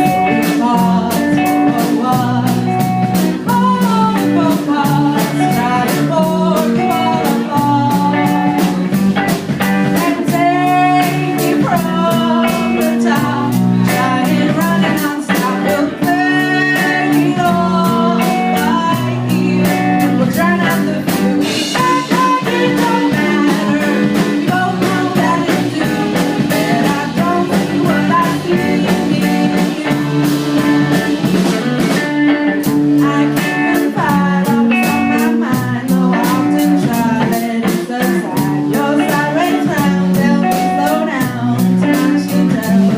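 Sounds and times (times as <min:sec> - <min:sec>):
drum beat on cymbals: 0:00.0 - 0:42.9
electric guitar: 0:00.0 - 0:42.9
person singing: 0:00.0 - 0:42.9.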